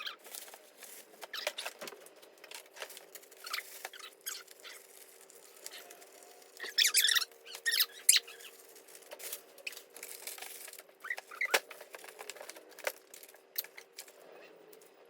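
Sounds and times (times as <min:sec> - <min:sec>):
squeaks: 0:00.0 - 0:00.2, 0:03.3 - 0:08.6, 0:11.0 - 0:11.8
packaging crinkling: 0:00.0 - 0:14.1
plastic containers clicking and knocking: 0:09.8 - 0:14.0.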